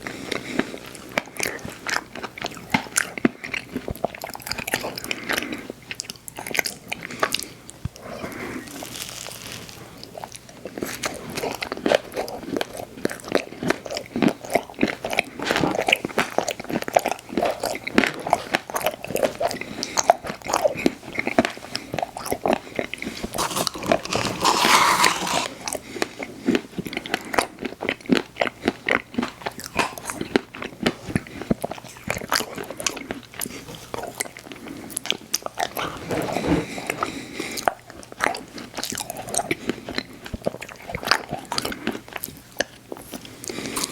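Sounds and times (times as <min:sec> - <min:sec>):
crunching and wet chewing: 0:00.0 - 0:43.9.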